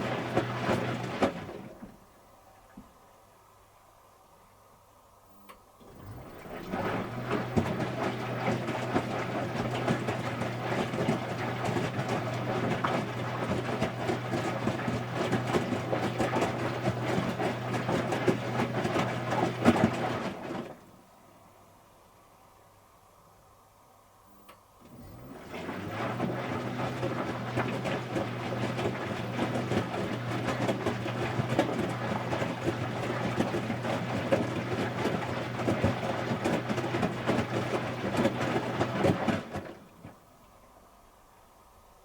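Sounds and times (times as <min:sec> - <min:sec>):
washing machine running: 0:00.0 - 0:02.0, 0:05.8 - 0:21.1, 0:24.8 - 0:40.4.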